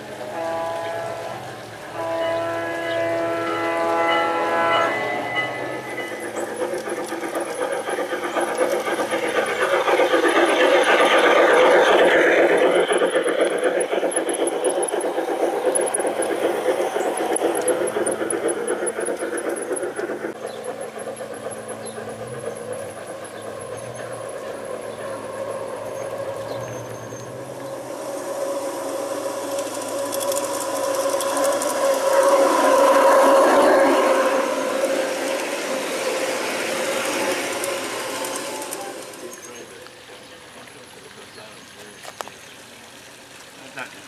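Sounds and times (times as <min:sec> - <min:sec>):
model train horn: 0:00.2 - 0:06.0
model train wheels clattering: 0:05.4 - 0:42.7.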